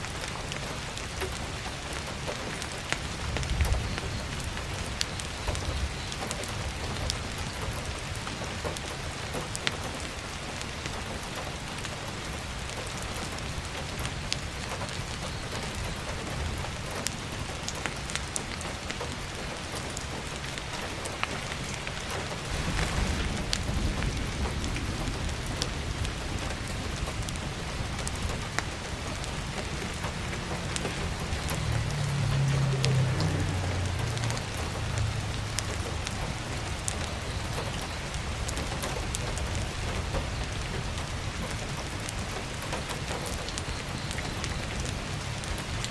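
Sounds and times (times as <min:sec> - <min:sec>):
heavy rain on skylight: 0:00.0 - 0:45.9
low rumble: 0:22.2 - 0:37.6.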